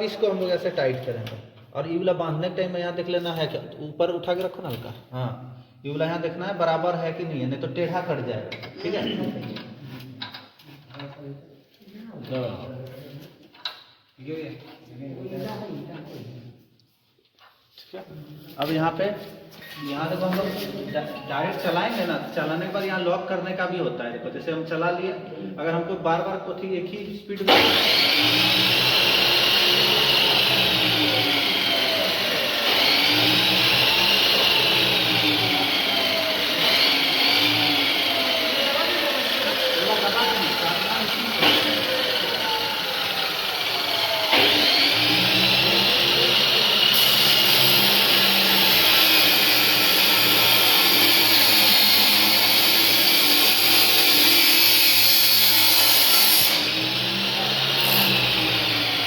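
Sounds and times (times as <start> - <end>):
power hacksaw cutting metal: 27.5 - 59.0.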